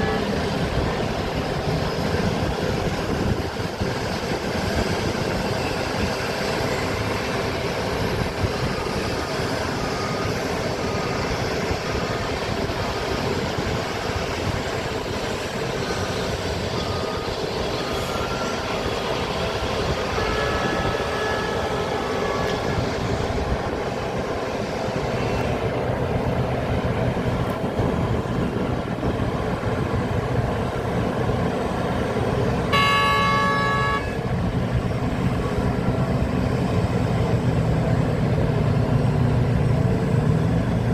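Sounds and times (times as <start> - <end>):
loud vehicle horn: 0.0 - 0.4, 20.0 - 22.6, 32.6 - 34.3
heavy diesel engines running: 0.0 - 40.9
short beeps: 32.7 - 34.2.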